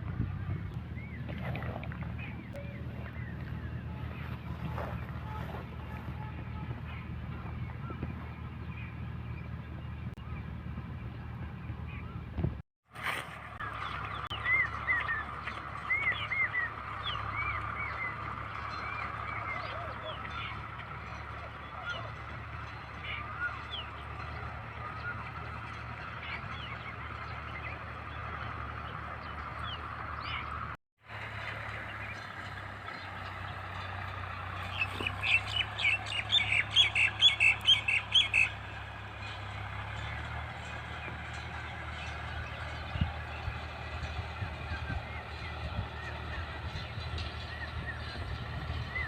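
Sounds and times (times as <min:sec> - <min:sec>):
low rumble: 0:00.0 - 0:12.6
outdoor background noise: 0:00.0 - 0:49.0.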